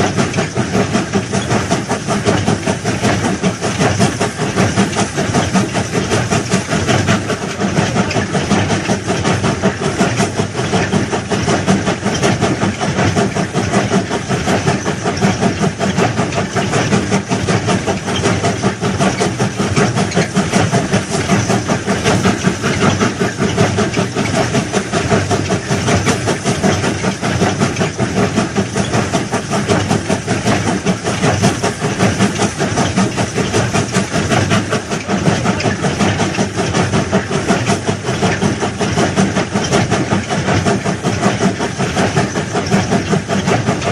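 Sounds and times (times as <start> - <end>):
track-laying machinery running: 0.0 - 43.9.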